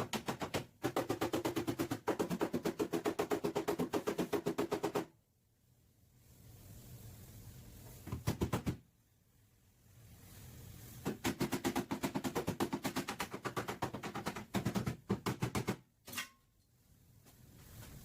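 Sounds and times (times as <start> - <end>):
rapid hammering on sheet metal: 0.0 - 5.1, 11.0 - 15.9.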